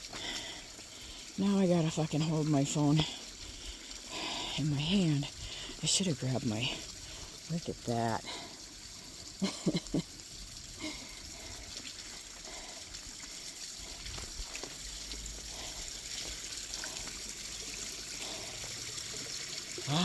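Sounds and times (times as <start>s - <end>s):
water trickling and splashing: 0.0s - 20.0s.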